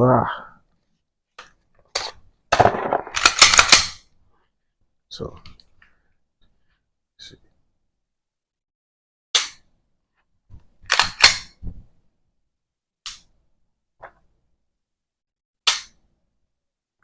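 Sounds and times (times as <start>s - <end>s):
pistol slide metallic clacks: 3.0s - 4.0s, 15.7s - 16.0s.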